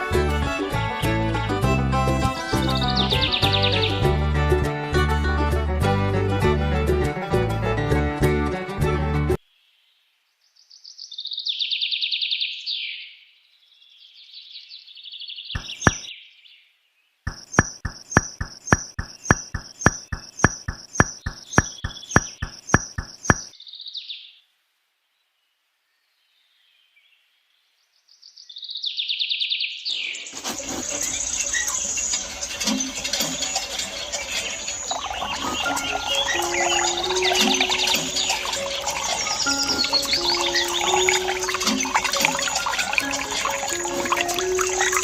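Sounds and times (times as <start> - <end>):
birds chirping: 2.4 - 4.0, 15.5 - 16.4, 17.3 - 24.2, 29.9 - 45.0
sharp clicks: 15.6 - 16.1, 17.3 - 23.5.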